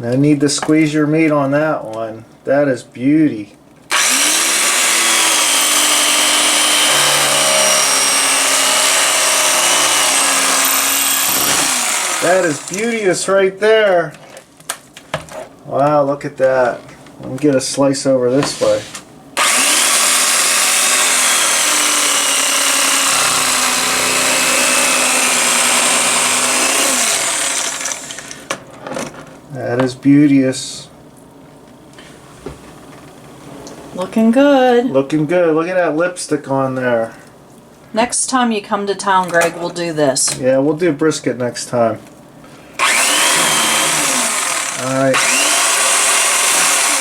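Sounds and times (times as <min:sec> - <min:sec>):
electric carving knife running: 0:03.9 - 0:13.0, 0:19.4 - 0:28.5, 0:42.8 - 0:47.0.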